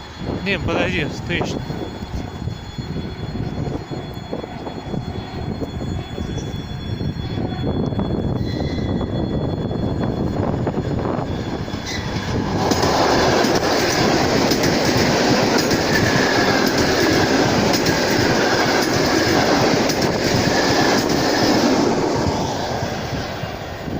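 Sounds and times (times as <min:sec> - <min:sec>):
faint high wheel squeal: 0:00.0 - 0:12.4
train wheels clattering over rail joints: 0:11.7 - 0:22.4.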